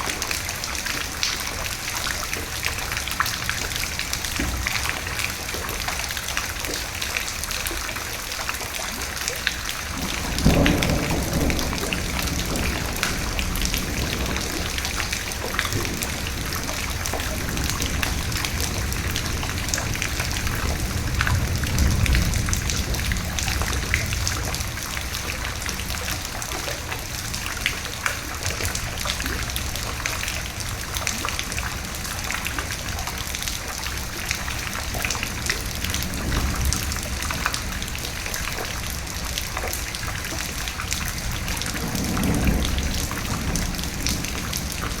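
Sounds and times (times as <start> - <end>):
steady rain falling: 0.0 - 45.0
thunder rolling: 9.6 - 45.0.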